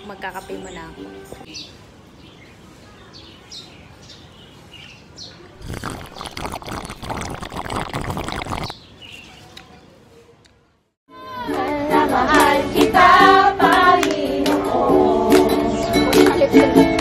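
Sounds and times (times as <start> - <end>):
small birds chirping: 0.0 - 6.9, 8.1 - 10.9.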